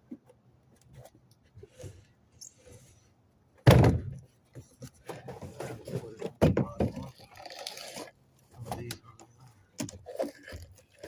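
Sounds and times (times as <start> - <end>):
heavy thud: 3.6 - 4.2.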